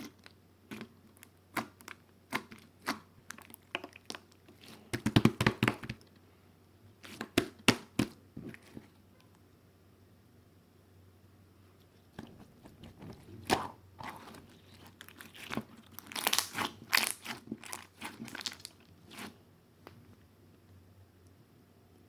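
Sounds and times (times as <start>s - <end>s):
crunching and crackling: 0.0s - 6.1s, 12.1s - 19.4s.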